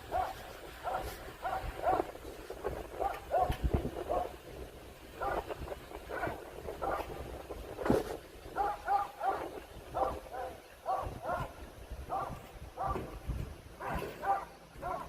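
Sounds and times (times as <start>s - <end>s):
dog barking: 0.1s - 2.1s, 3.0s - 4.3s, 5.2s - 5.4s, 8.6s - 11.5s, 12.1s - 13.1s, 13.8s - 15.0s.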